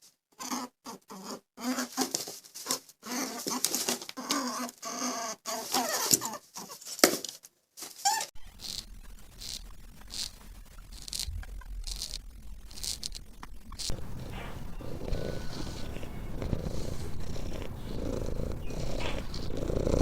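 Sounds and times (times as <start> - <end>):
soft high scratching: 7.8 - 20.0
small animal squeaking: 13.8 - 20.0.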